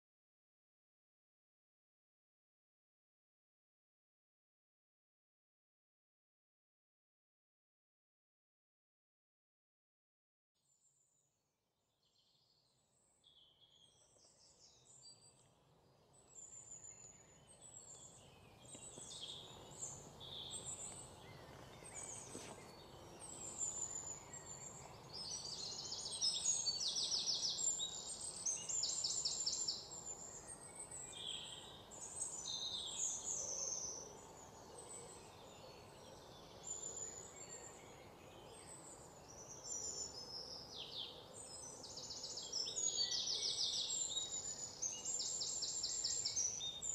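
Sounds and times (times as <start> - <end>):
songbirds chirping and trilling: 12.1 - 46.9.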